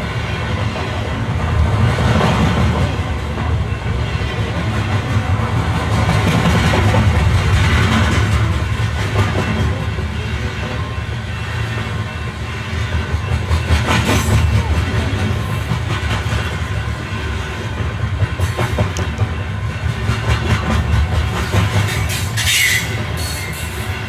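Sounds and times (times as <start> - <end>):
train rumbling on rails: 0.0 - 24.0
wheel clacks on rail joints: 12.7 - 24.0
metallic wheel squeal: 21.9 - 24.0.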